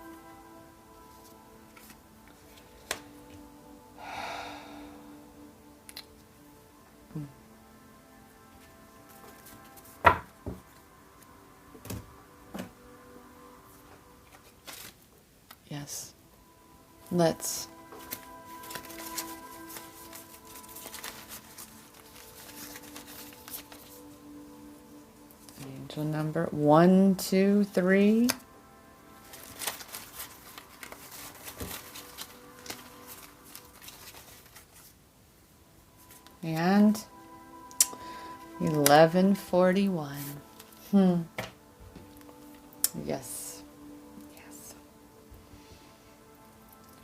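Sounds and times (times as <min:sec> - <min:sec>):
faint soft background music: 0:00.0 - 0:47.0
knocks and handling sounds: 0:29.3 - 0:35.0.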